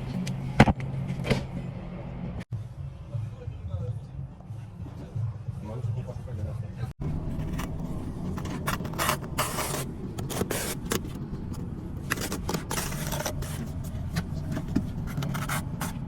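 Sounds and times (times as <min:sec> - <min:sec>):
hand tool scraping mortar: 0:07.2 - 0:11.2.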